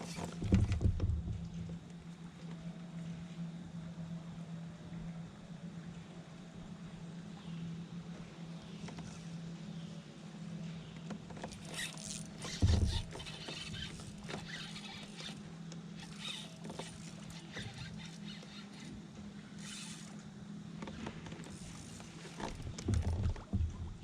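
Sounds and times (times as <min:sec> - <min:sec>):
steady low hum: 0:00.0 - 0:24.0
squeaks and clicks: 0:11.4 - 0:15.4, 0:16.0 - 0:19.0.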